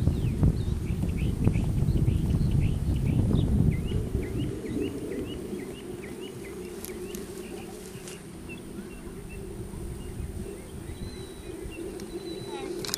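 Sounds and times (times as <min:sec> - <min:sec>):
small bird chirping: 0:00.0 - 0:12.9
steady low rumble: 0:00.0 - 0:12.9.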